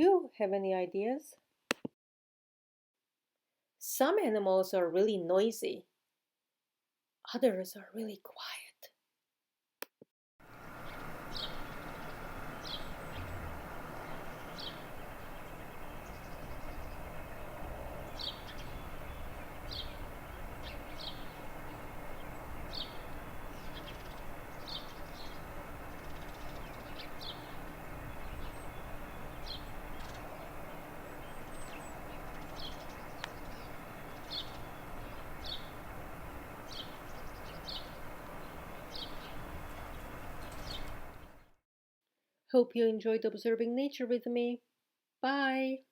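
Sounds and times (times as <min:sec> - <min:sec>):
outdoor background hum: 0:10.4 - 0:41.6
bird high call notes: 0:10.9 - 0:41.1.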